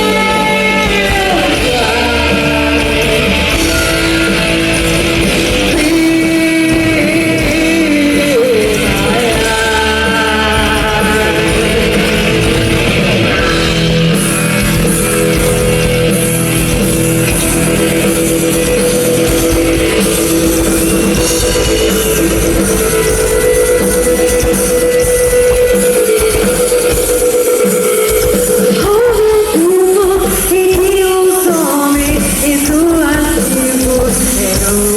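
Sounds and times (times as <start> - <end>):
bass guitar: 0.0 - 34.9
distorted electric guitar: 0.0 - 34.9
drum kit: 0.0 - 34.9.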